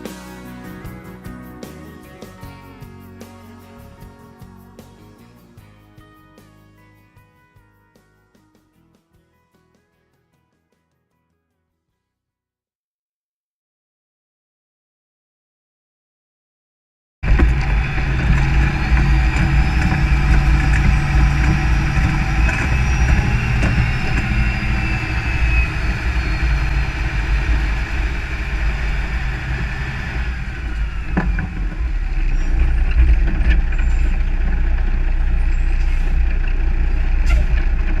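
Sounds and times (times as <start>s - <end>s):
high whine: 0.0s - 6.6s, 17.2s - 38.0s
diesel harvest machinery running: 17.2s - 38.0s.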